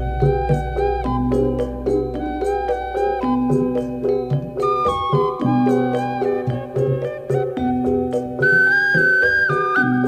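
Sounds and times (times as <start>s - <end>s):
repeating bass accompaniment: 0.0s - 4.3s
flute-like melody: 0.0s - 10.0s.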